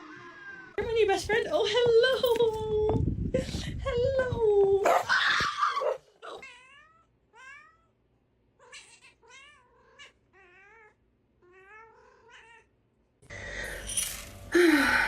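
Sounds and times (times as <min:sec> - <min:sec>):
cat meowing: 0:06.3 - 0:07.9, 0:08.6 - 0:12.7.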